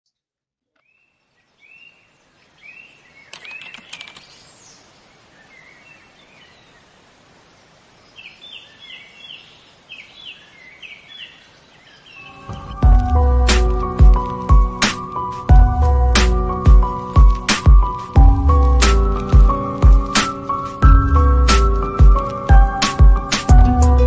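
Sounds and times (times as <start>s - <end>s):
bird chirps: 0.8s - 6.9s, 8.1s - 12.8s
sharp clicks: 3.3s - 4.3s.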